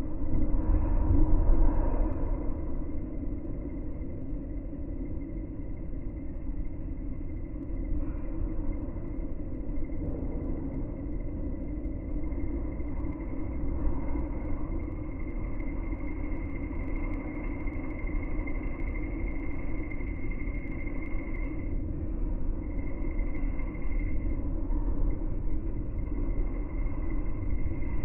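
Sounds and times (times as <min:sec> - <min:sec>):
slowed train rumble: 0:07.4 - 0:28.0.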